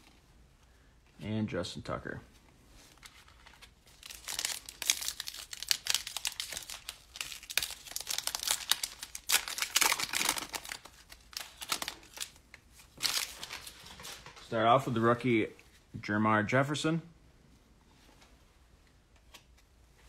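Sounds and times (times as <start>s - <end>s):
foil wrapper tearing and crinkling: 3.3s - 12.4s, 13.0s - 13.8s.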